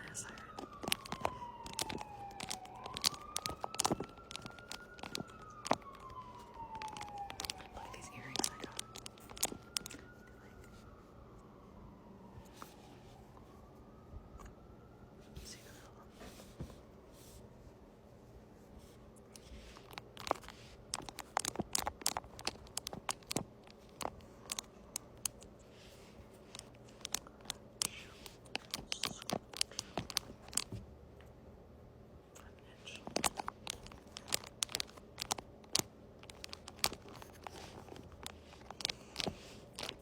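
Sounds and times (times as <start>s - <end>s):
close scratching and crackles: 0.0s - 11.0s, 18.1s - 30.8s, 32.4s - 40.0s.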